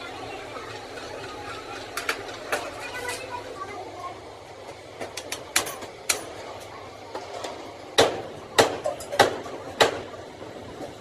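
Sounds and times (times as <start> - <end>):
tools and metal parts clinking: 5.1 - 7.6, 8.8 - 9.2.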